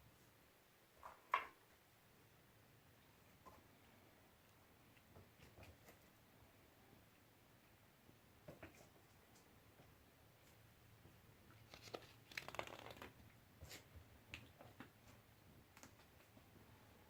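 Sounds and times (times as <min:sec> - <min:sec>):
kittens rustling and scratching: 0:04.8 - 0:06.3, 0:08.4 - 0:16.6.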